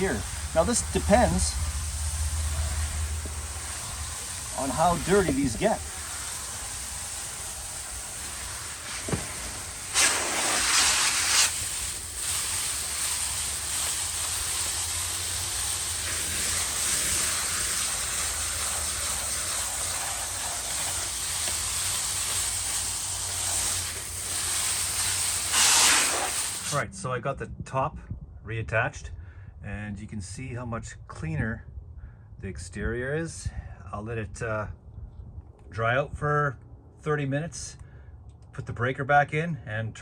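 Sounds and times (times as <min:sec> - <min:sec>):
water spraying on condenser coils: 0:00.0 - 0:26.8.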